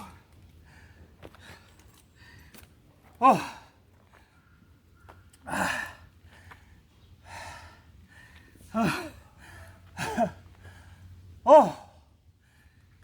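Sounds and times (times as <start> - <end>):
man groaning: 3.2 - 3.6, 11.5 - 12.0.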